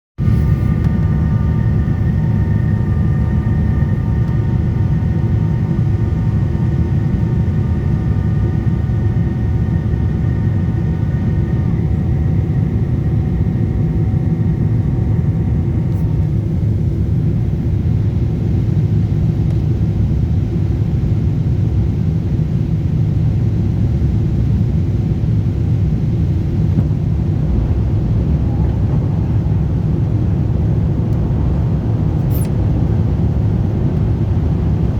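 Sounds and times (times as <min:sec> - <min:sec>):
airliner low rumble: 0:00.2 - 0:34.9
steady whining tones: 0:26.2 - 0:34.6.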